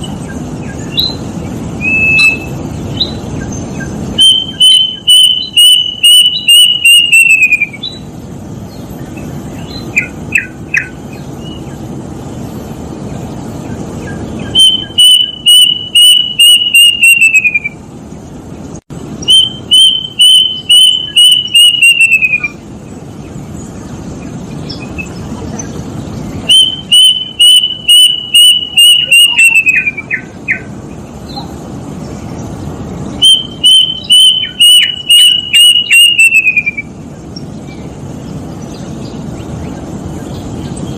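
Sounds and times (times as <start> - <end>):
cuckoo whistling song: 0.0 - 8.1, 9.1 - 11.7, 14.0 - 17.8, 19.2 - 22.6, 26.3 - 30.7, 33.2 - 37.0
steady low rumble: 0.0 - 16.4, 17.0 - 35.6, 36.6 - 40.9.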